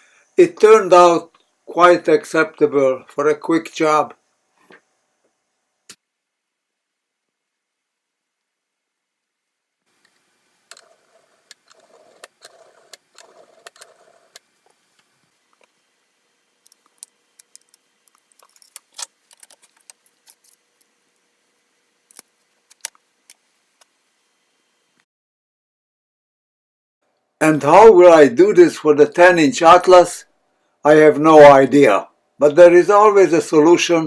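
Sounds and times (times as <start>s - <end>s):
small metal parts clinking: 16.7s - 20.6s
metal parts scraping and rattling: 16.7s - 20.9s.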